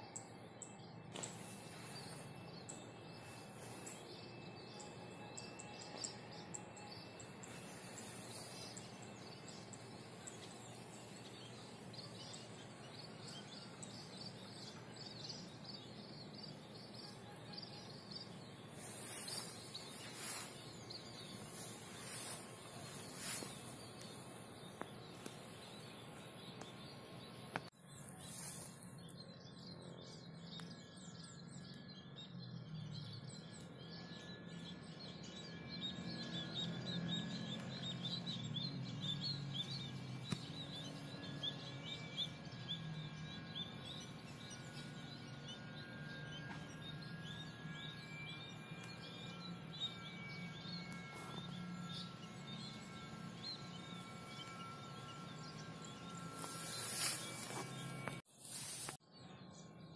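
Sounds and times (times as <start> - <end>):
steady insect tones: 0.0 - 27.0
birds chirping: 0.0 - 59.8.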